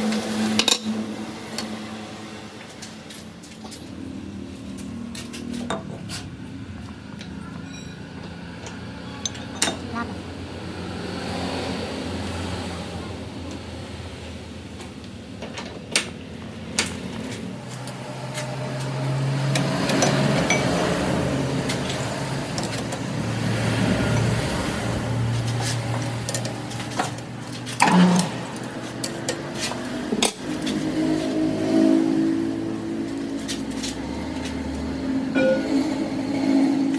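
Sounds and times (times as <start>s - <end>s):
metal tools clanking: 7.3s - 10.0s, 19.6s - 21.0s
machine hum: 17.6s - 36.9s
steady machine hum: 34.3s - 36.9s
sharp metal knocks: 35.4s - 36.2s.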